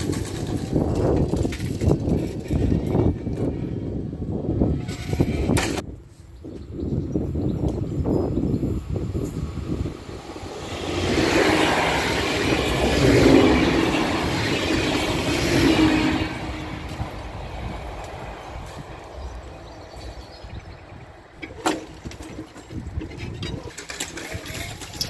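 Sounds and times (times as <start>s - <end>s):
passenger train running past: 7.9s - 21.4s.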